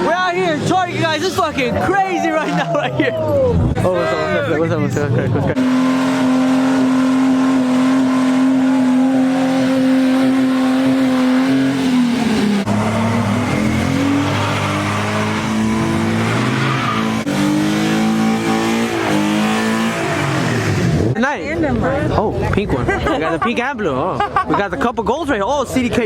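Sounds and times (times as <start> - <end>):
car engine revving: 3.6 - 21.2
tyres squealing on pavement: 8.2 - 20.8.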